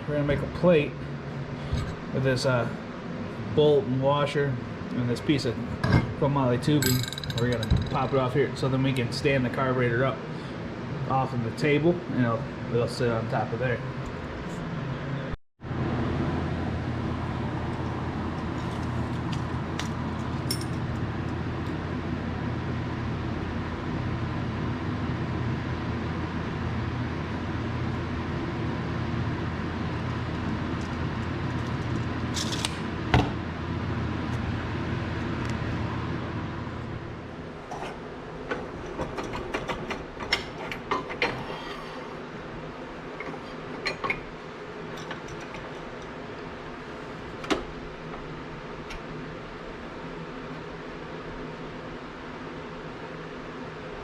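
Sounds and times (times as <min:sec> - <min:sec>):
small metal parts clinking: 0:06.8 - 0:08.0.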